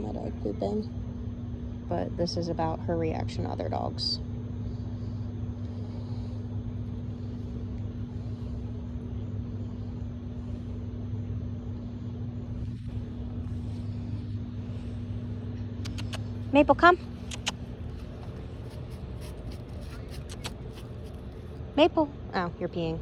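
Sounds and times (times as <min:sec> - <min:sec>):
low mechanical rumble and hum: 0:00.0 - 0:23.0.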